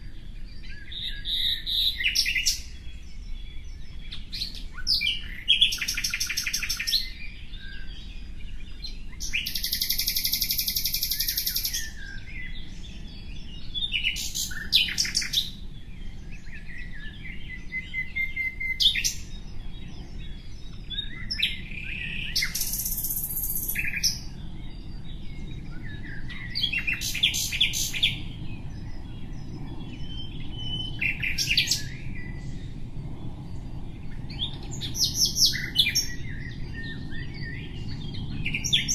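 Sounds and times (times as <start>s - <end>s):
bird chirps and trills: 0.0s - 38.9s
harsh buzzy bird song: 0.0s - 38.9s
low background rumble: 24.2s - 38.9s.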